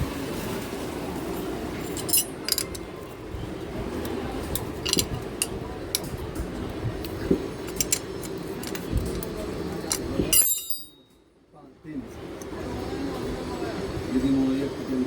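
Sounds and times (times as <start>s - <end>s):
low background hum: 0.0s - 15.0s
metal parts clinking: 1.9s - 2.8s, 4.8s - 6.1s, 7.0s - 9.2s, 9.9s - 11.0s.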